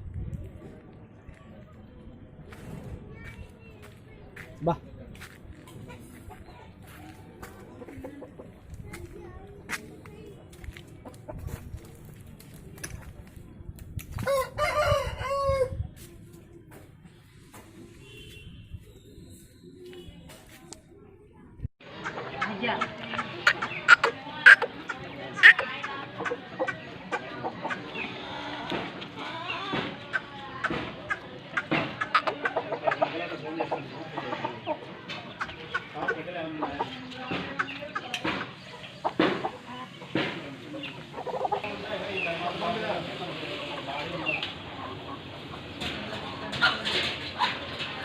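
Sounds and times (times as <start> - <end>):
people talking: 0.0 - 18.2, 18.8 - 48.0
chickens clucking: 5.2 - 9.9, 10.5 - 12.6, 21.8 - 48.0
rooster crowing: 14.3 - 15.7.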